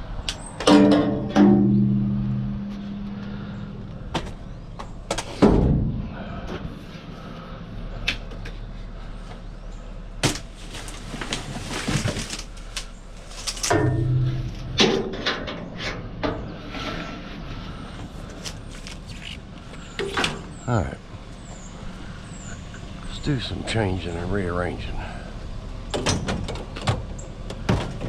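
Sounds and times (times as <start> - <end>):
scrap metal knocking and clattering: 0.6 - 3.5, 13.4 - 17.8.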